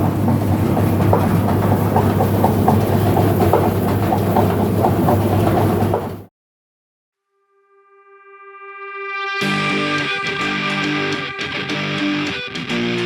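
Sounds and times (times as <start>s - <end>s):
bucket elevator humming and clattering: 0.0s - 6.3s.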